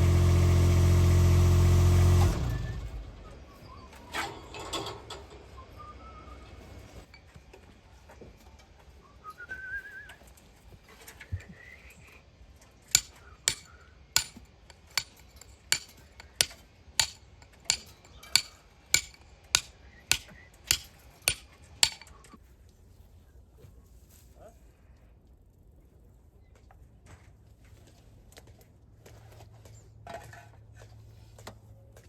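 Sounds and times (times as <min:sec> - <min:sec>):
hammer strikes ringing: 0:13.0 - 0:22.1.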